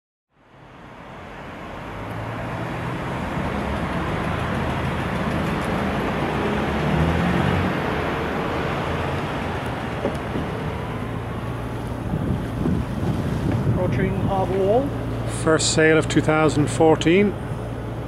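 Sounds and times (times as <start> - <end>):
engine running: 0.9 - 18.0.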